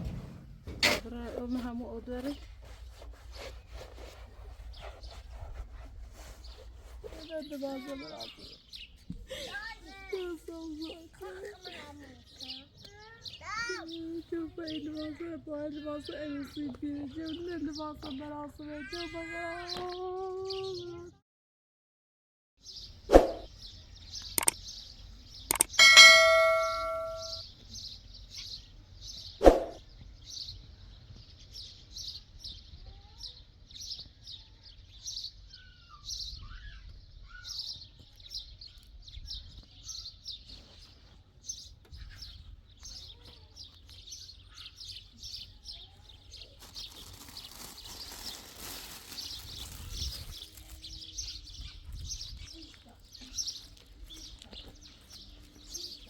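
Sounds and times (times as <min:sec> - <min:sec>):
small birds chirping: 0:00.7 - 0:21.2, 0:22.6 - 0:56.0
ringing ding: 0:25.8 - 0:27.4.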